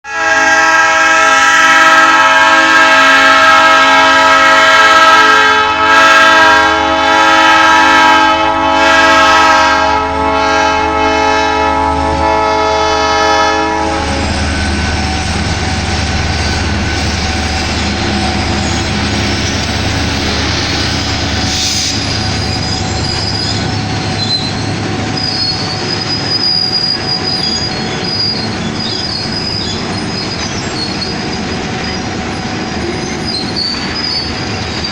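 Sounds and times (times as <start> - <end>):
locomotive horn: 0.0 - 29.2
train rolling rumble: 0.5 - 34.9
thin wheel squeal: 16.4 - 19.7, 20.6 - 32.0, 33.0 - 34.4.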